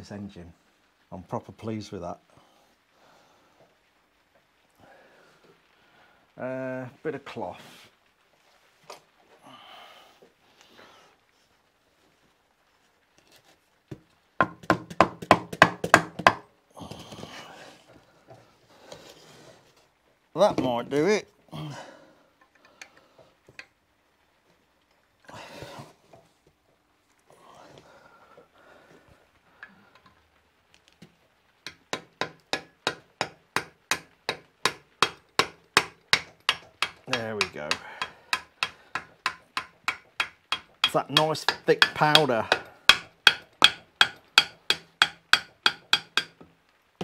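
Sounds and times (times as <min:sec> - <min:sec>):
scraping and handling noise: 0:11.9 - 0:14.2, 0:16.8 - 0:21.0
hammer tapping on metal bolt: 0:31.7 - 0:46.5.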